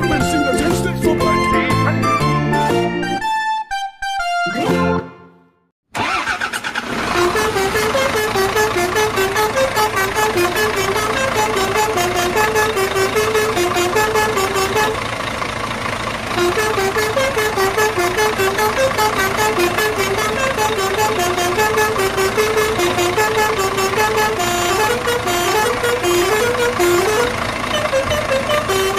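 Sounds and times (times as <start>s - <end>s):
upbeat background music: 0.0s - 5.4s.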